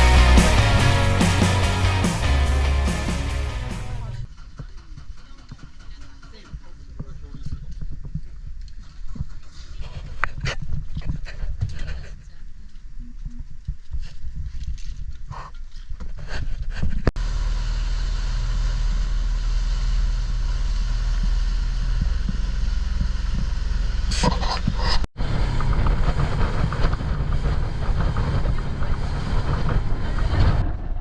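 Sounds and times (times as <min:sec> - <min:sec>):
engine running: 0:00.0 - 0:04.3, 0:17.2 - 0:31.0
wind noise on microphone: 0:23.0 - 0:31.0.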